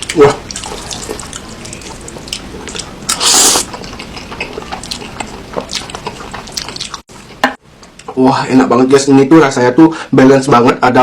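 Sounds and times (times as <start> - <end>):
wet chewing with mouth clicks: 0.0 - 7.4
slurping noodles: 3.1 - 3.9.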